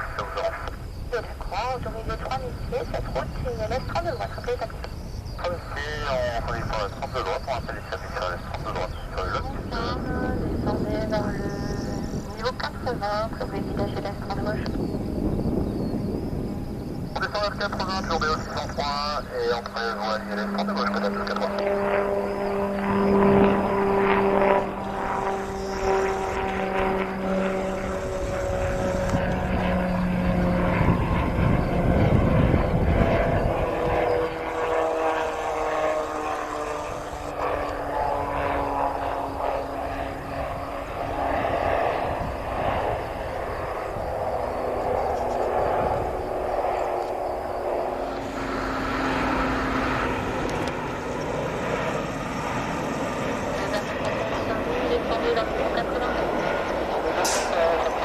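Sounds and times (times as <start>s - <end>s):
turboprop plane passing: 0.0s - 58.0s.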